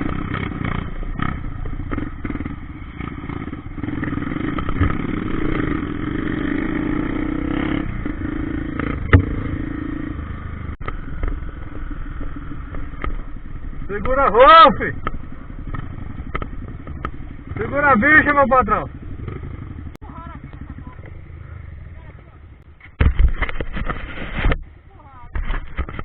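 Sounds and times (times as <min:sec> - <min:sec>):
motorcycle engine running: 0:00.0 - 0:26.0
knocks and clatter: 0:04.4 - 0:05.7, 0:08.8 - 0:09.7, 0:15.0 - 0:17.6, 0:22.8 - 0:24.6.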